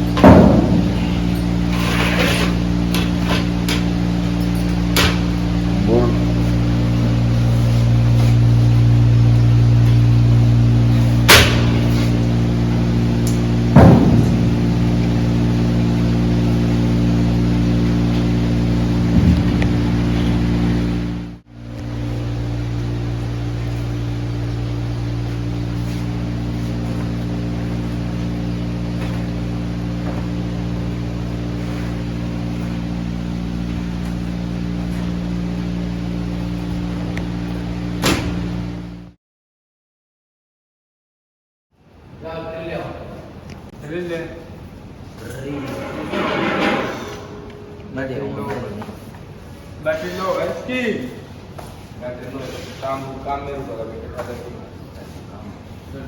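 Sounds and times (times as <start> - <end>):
engine drone: 0.0 - 39.2, 44.9 - 49.7
machinery humming: 0.0 - 39.2, 42.0 - 56.0
sharp knocks: 0.2 - 1.3, 13.7 - 15.0.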